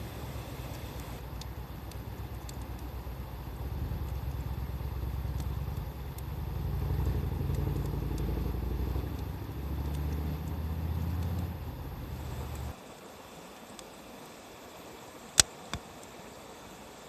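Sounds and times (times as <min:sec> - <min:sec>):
wood fire crackling and popping: 0:00.0 - 0:12.8
loud low rumble: 0:02.2 - 0:12.7.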